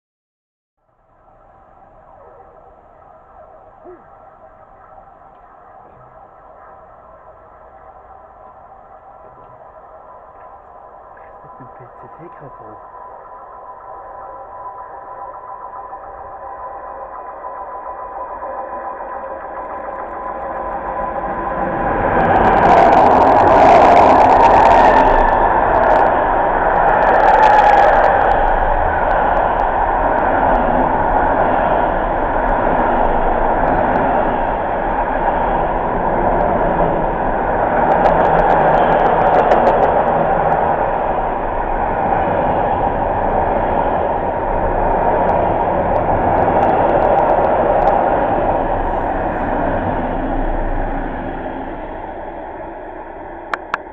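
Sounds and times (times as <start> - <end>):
train wheels rumbling on rails: 3.8 - 12.8, 15.8 - 53.9
crackling and clicking: 23.1 - 30.3, 37.6 - 41.1, 45.2 - 49.5, 53.5 - 53.9.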